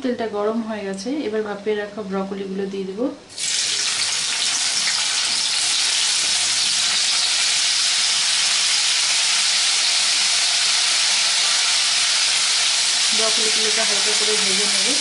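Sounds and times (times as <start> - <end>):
vegetables sizzling in hot oil: 3.3 - 15.0.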